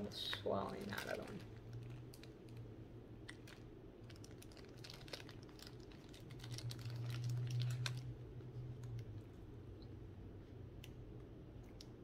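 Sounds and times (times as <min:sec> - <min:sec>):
plastic wrapper crinkling: 0:00.0 - 0:09.3
low steady hum: 0:00.0 - 0:12.0.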